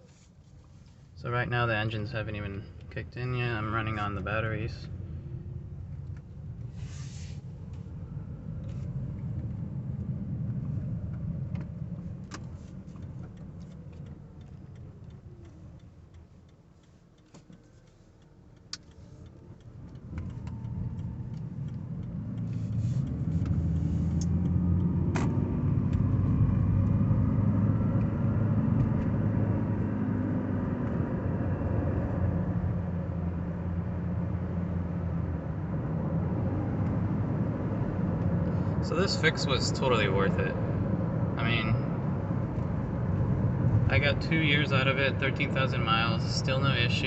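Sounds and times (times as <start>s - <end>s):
road rumble in car cabin: 0.0s - 47.0s
engine drone: 18.8s - 47.0s.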